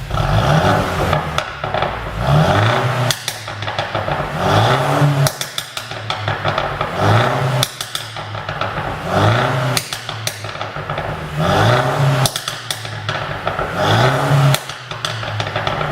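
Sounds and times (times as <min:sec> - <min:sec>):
car engine revving: 0:00.0 - 0:15.9
exhaust pops and crackles: 0:00.0 - 0:15.9.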